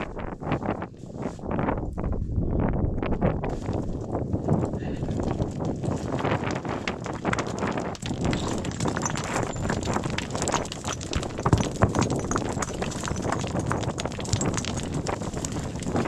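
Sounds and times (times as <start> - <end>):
dense clattering knocks: 6.9 - 16.0.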